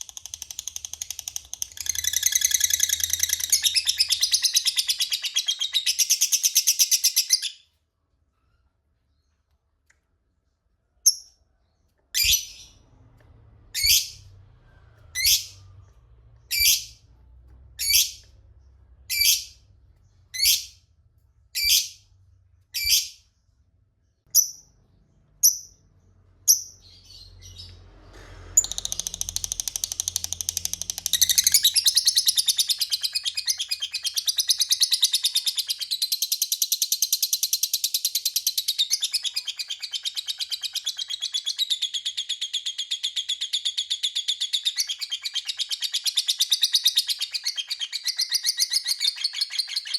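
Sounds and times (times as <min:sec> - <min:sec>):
lovebird shrill chirps: 0:00.2 - 0:07.6, 0:12.2 - 0:12.8, 0:13.8 - 0:14.3, 0:15.2 - 0:15.6, 0:16.5 - 0:17.0, 0:17.8 - 0:18.2, 0:19.1 - 0:19.6, 0:20.3 - 0:20.8, 0:21.6 - 0:22.0, 0:22.8 - 0:23.2, 0:28.6 - 0:49.9.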